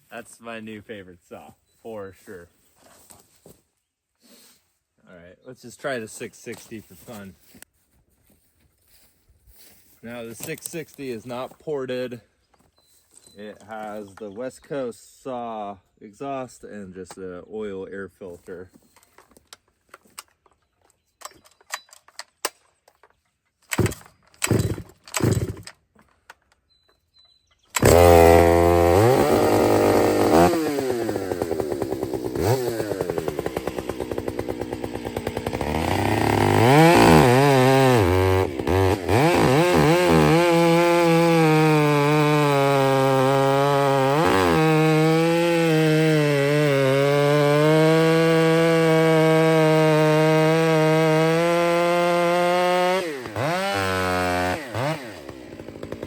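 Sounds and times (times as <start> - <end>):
chainsaw revving: 23.7 - 25.7, 27.8 - 56.0.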